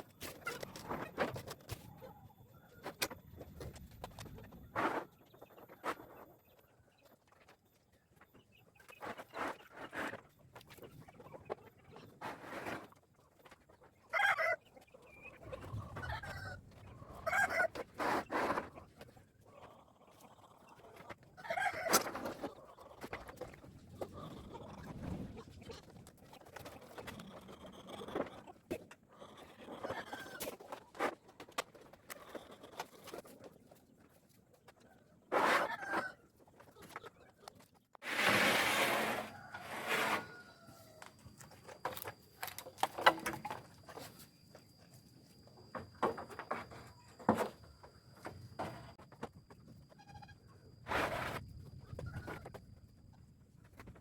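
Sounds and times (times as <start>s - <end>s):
chickens clucking: 0.0s - 38.0s, 51.6s - 54.0s
chickens squawking: 14.0s - 18.4s.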